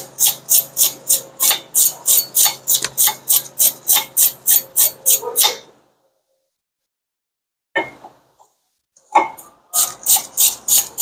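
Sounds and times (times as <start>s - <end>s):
brush scrubbing metal: 9.8s - 11.0s.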